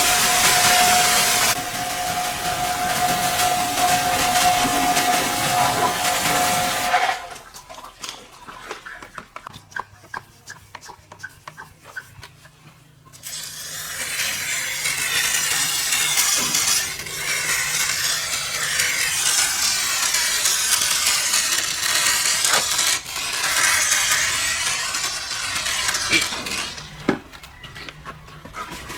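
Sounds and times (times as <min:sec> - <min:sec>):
steady hiss: 0:00.0 - 0:07.1
scrubbing and rubbing: 0:00.0 - 0:13.0.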